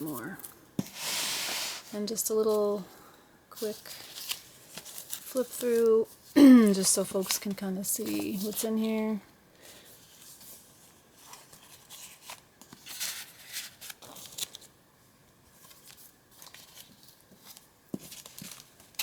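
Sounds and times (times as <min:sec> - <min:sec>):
paper pages rustling: 0:03.6 - 0:09.0, 0:09.6 - 0:14.8, 0:15.4 - 0:19.0.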